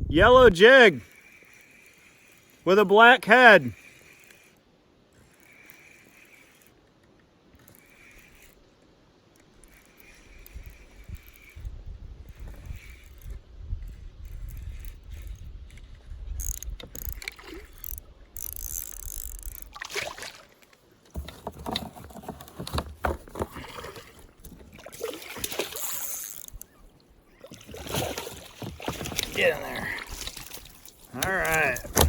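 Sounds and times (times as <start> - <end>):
wind on microphone: 0.0 - 0.6, 10.6 - 17.8
knocks and rustling in kayak: 19.7 - 32.0.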